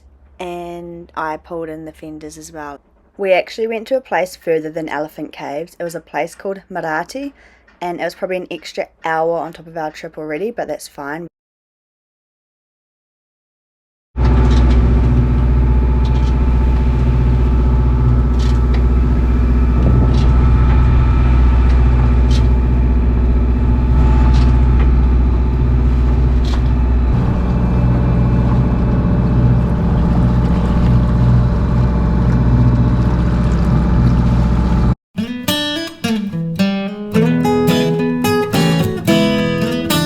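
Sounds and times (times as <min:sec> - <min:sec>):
boat engine running: 0:14.2 - 0:35.0.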